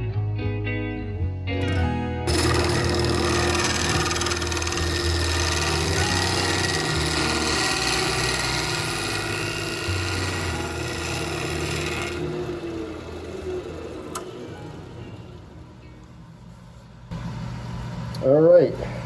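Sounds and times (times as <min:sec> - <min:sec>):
turning tool scraping wood: 0:02.3 - 0:14.8
lathe humming: 0:02.3 - 0:19.0.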